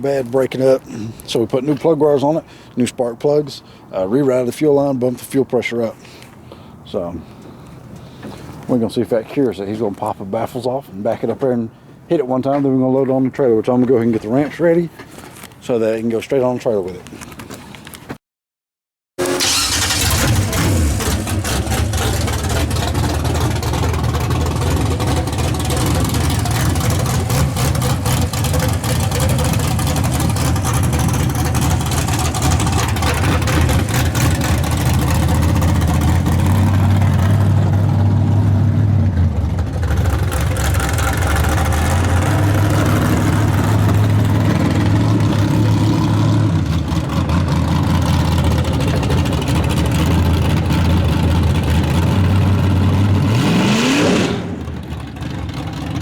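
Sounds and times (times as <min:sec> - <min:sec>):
loud race engine idling and revving: 0:19.2 - 0:56.0.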